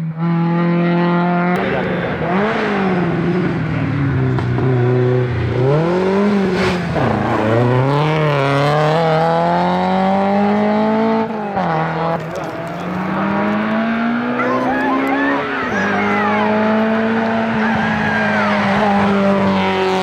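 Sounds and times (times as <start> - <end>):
car engine revving through gears: 0.2 - 20.0.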